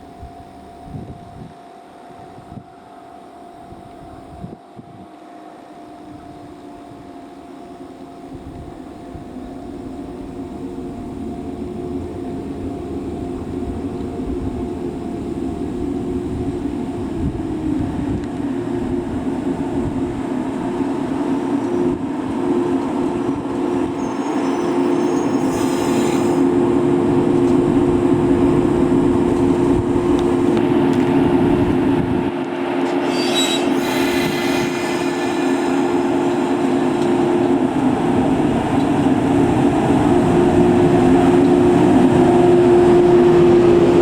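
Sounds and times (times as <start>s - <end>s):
electric train approaching: 0.0s - 44.0s.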